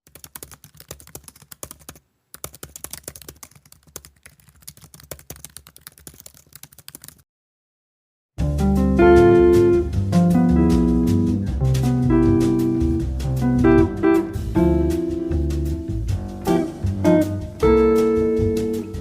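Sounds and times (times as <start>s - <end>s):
typing on a keyboard: 0.0s - 7.2s
acoustic guitar music: 8.4s - 19.0s.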